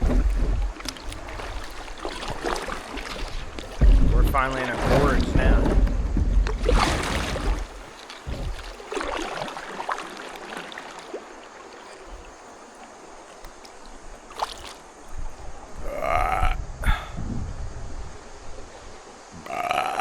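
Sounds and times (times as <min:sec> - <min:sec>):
wind buffeting microphone: 0:00.0 - 0:08.7, 0:15.0 - 0:19.4
paddle splashes: 0:00.0 - 0:15.9
water rippling: 0:00.0 - 0:20.0
short vocal sound: 0:15.8 - 0:17.2, 0:19.4 - 0:20.0.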